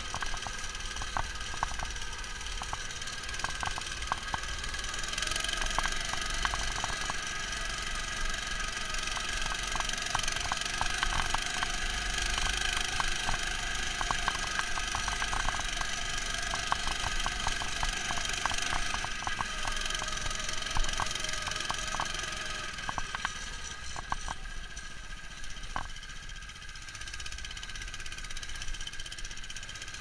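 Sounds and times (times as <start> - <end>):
muffled small engine running: 0.0 - 30.0
light ticks: 5.4 - 7.2, 9.1 - 24.9.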